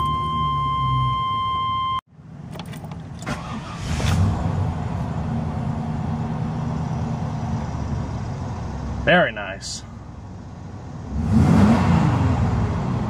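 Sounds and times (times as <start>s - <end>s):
engine starting and idling: 2.5s - 4.4s.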